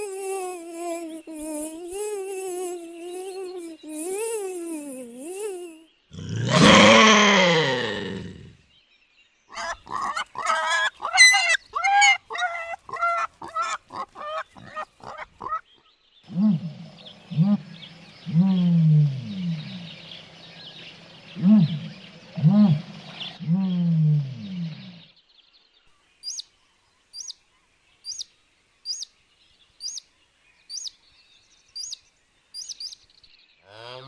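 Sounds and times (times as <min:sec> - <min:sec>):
short animal calls: 0:00.0 - 0:08.5, 0:09.6 - 0:15.6
harsh falling animal call: 0:00.0 - 0:08.6, 0:09.6 - 0:15.6
low falling animal calls: 0:00.0 - 0:08.6, 0:09.5 - 0:15.6, 0:16.3 - 0:25.0.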